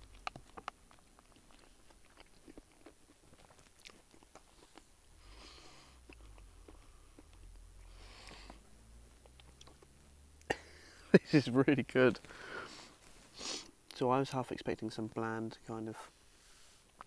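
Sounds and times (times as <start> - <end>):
man chewing: 0.0 - 10.7.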